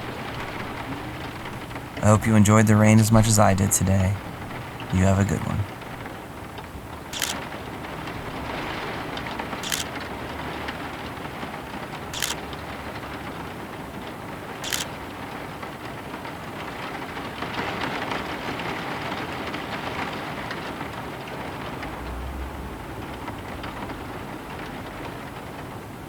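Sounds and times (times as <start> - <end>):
steady rain falling: 0.0 - 26.0
sharp ticks: 7.2 - 7.4, 9.6 - 9.9, 12.2 - 12.4, 14.6 - 14.9.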